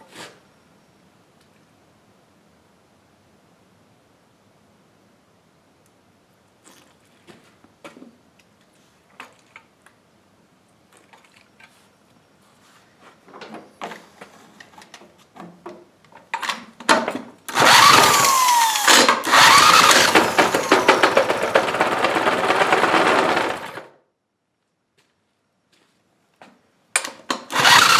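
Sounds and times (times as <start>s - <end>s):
power tool running: 17.5s - 23.9s, 27.5s - 27.9s
clicks and knocks of parts handled: 26.9s - 27.5s.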